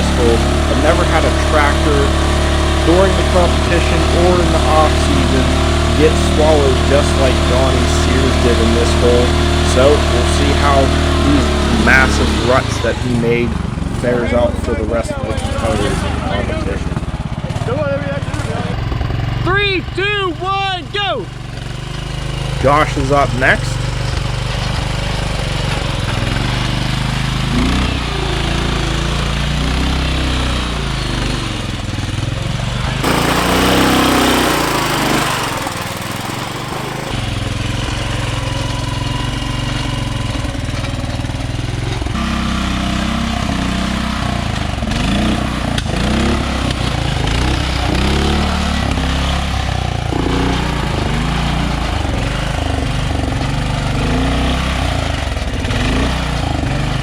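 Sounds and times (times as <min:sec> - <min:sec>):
lawn tractor engine revving: 0:00.0 - 0:09.0, 0:33.0 - 0:37.2
loud rushing noise: 0:33.0 - 0:37.2.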